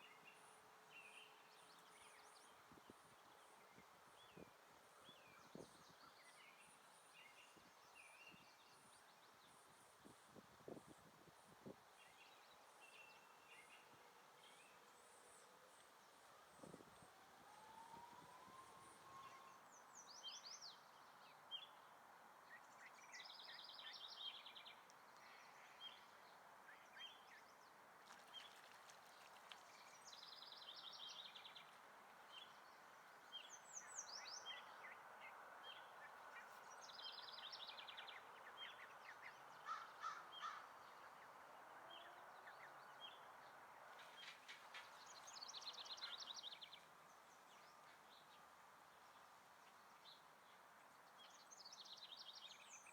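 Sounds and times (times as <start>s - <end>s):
faint background hiss: 0.0s - 52.9s
songbird trilled song: 44.0s - 48.4s.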